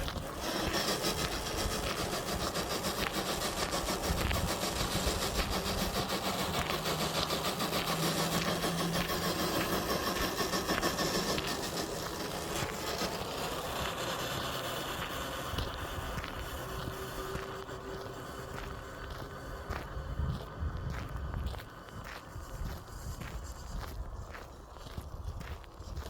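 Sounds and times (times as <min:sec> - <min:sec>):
toy truck motor whining: 0:00.0 - 0:20.3
crackling rattle over ground: 0:00.0 - 0:26.0.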